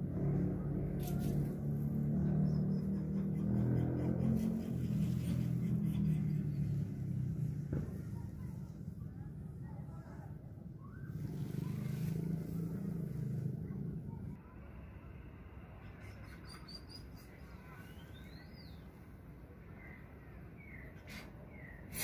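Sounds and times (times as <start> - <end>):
small birds chirping: 15.8 - 22.0.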